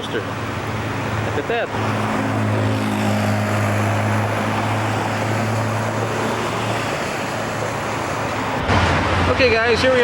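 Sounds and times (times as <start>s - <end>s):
low vehicle engine drone: 0.0s - 10.0s
street noise: 0.0s - 10.0s.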